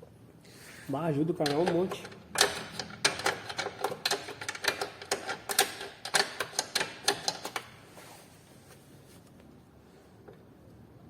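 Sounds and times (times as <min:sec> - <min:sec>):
hand tools clicking and knocking: 0:01.4 - 0:07.8.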